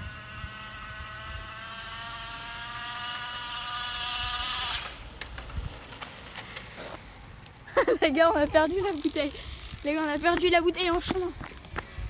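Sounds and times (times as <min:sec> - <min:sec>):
bottle flapping on bicycle spokes: 0:04.8 - 0:08.0.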